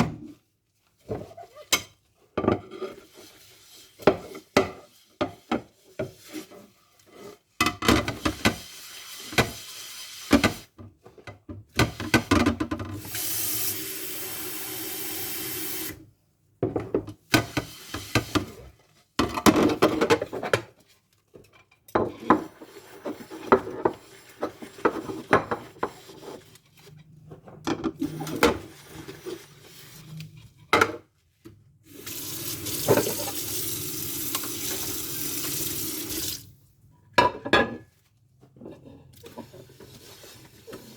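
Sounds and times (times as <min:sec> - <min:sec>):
faucet running: 0:13.1 - 0:16.0, 0:31.9 - 0:36.5
dishes clinking and knocking: 0:37.2 - 0:37.9.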